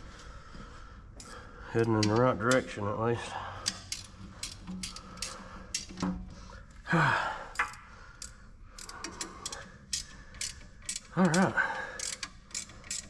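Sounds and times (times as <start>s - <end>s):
hand tools clinking on bolts: 1.2s - 6.2s, 7.5s - 13.0s
man sighing: 6.8s - 7.8s, 11.2s - 12.1s.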